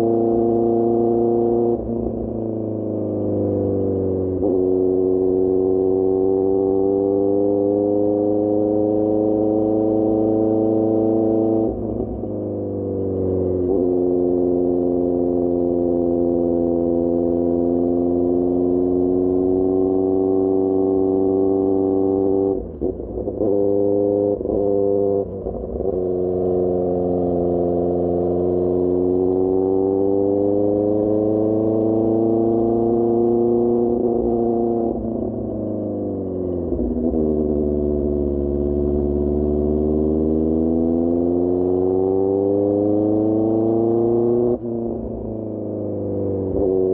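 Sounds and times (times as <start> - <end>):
motorcycle engine under throttle: 0.0 - 46.9.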